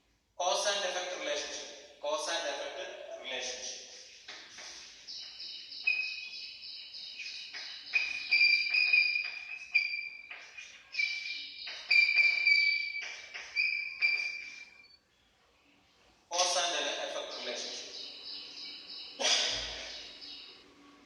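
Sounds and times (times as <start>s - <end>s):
marker squeaking on whiteboard: 3.9s - 15.0s.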